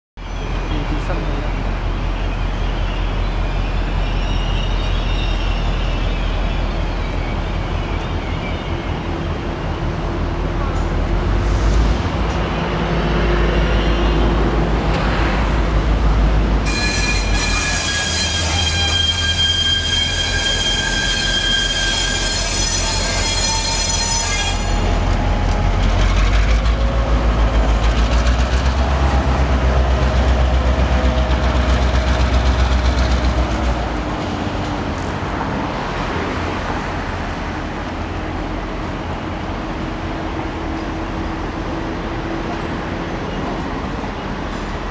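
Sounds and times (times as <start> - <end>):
low rumble of rail vehicles: 0.2 - 44.9
train wheels squealing: 2.1 - 9.3, 16.6 - 26.8.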